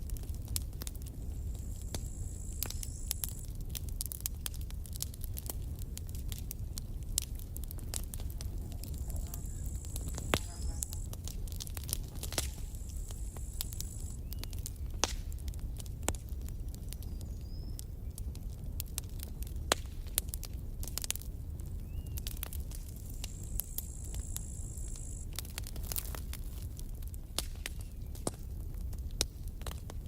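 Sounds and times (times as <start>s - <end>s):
campfire crackling: 0.0s - 30.0s
high hiss: 12.4s - 14.2s, 23.1s - 25.3s.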